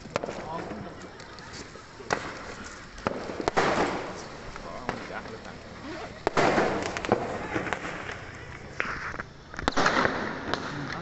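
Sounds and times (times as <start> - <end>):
firework crackling: 0.0 - 11.0
firework bang: 2.0 - 5.3, 6.2 - 11.0.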